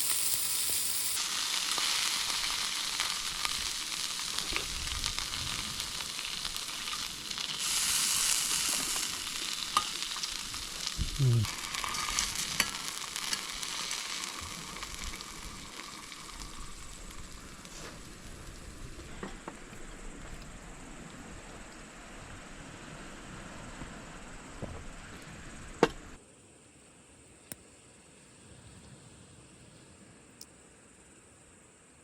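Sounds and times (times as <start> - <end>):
food sizzling in a frying pan: 0.0 - 18.9.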